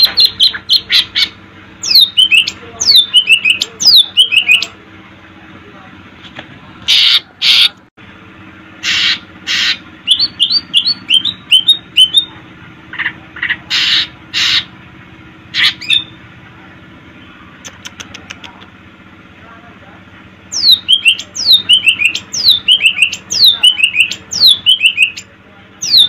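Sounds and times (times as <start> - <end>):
bird singing harsh rasping notes: 0.0 - 4.8, 8.8 - 14.8, 15.5 - 16.3, 20.5 - 26.0.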